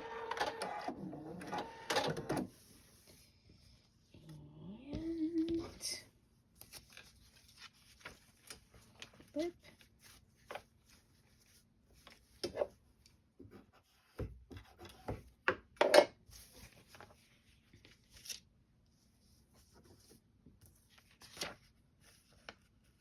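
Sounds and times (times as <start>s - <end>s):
paper and fabric rustling: 5.0s - 12.4s, 16.3s - 23.0s.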